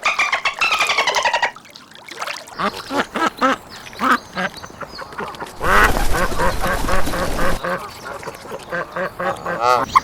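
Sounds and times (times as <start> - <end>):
ducks quacking: 2.6 - 10.0.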